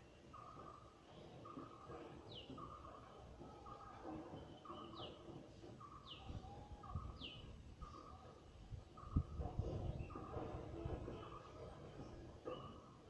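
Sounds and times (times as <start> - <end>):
faint bird calls: 0.0 - 13.0.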